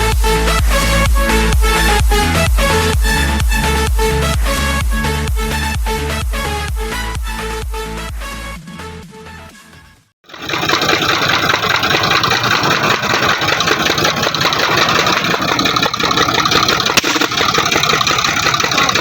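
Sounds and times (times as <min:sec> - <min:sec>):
tractor engine running: 0:10.3 - 0:19.0.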